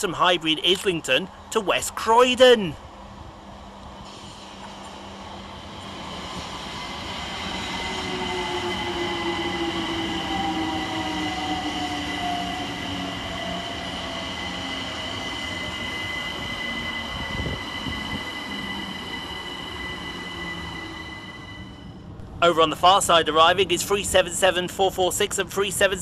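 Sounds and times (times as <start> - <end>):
electric train motors whining: 4.3 - 22.3
high-pitched brake squealing: 6.2 - 22.1.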